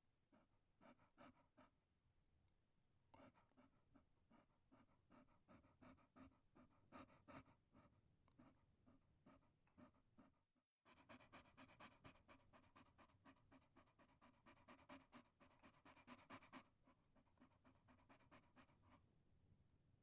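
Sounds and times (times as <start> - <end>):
dog panting: 0.3 - 1.8, 3.1 - 19.2.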